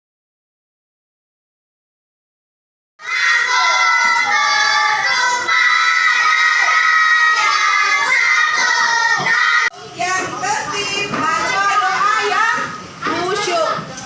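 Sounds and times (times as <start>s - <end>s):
children shouting: 3.0s - 9.7s.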